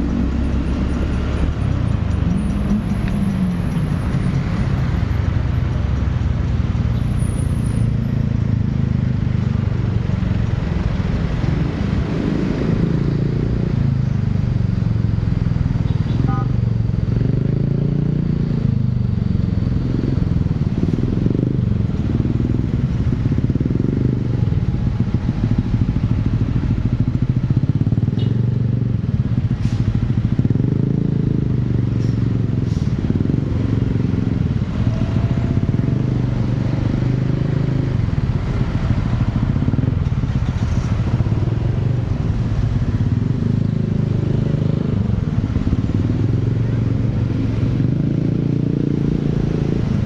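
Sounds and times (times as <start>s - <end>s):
motorcycle engine running: 13.5s - 50.0s.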